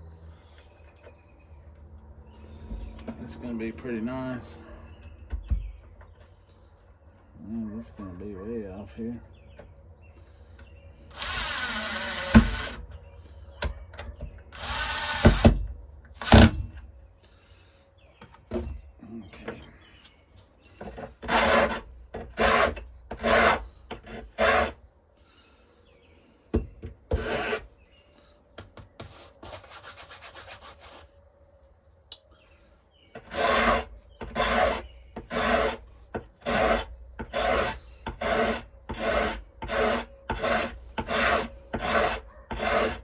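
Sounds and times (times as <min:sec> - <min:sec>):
hand file strokes: 0:20.8 - 0:24.8, 0:27.1 - 0:27.8, 0:29.0 - 0:31.2, 0:33.2 - 0:43.0.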